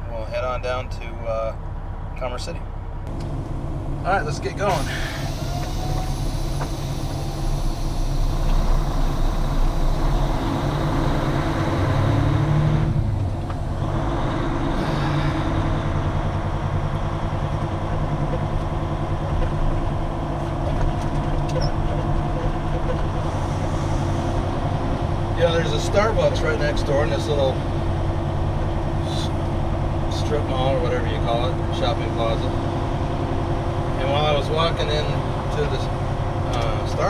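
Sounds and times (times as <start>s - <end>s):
diesel truck engine revving: 3.0s - 37.0s.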